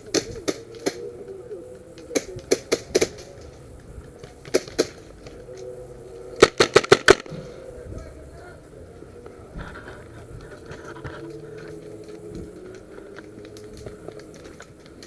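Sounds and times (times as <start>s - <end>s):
airsoft gun shots: 6.4s - 7.4s.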